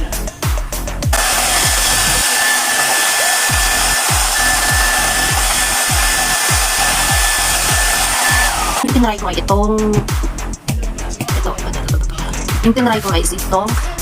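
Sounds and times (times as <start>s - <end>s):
hair dryer blowing: 1.2s - 8.9s.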